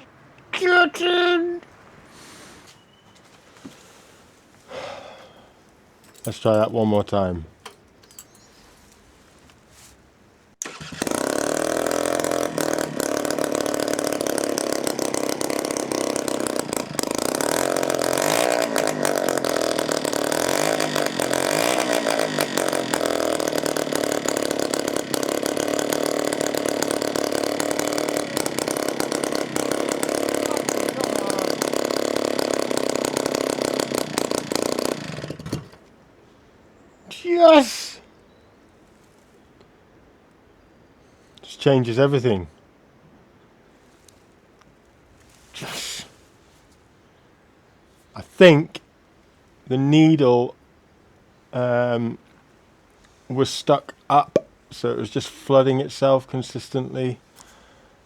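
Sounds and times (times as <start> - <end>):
loud two-stroke engine running: 10.6 - 35.9.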